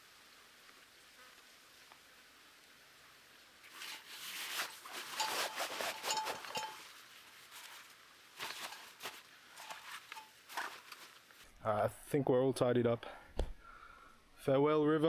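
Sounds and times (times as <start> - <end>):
gear rustling and scraping: 3.7 - 11.4
light clinks: 5.2 - 7.0.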